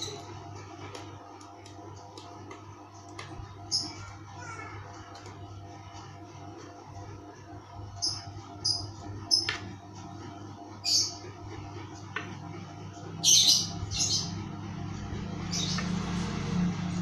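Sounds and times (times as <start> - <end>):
small bird chirping: 13.2 - 14.5, 15.4 - 16.1.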